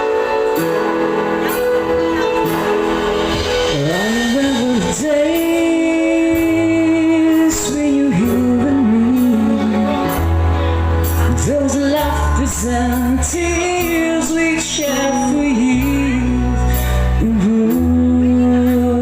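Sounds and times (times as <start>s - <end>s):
band playing a slow song: 0.0s - 19.0s
held bass notes: 0.0s - 19.0s
person singing: 0.0s - 19.0s.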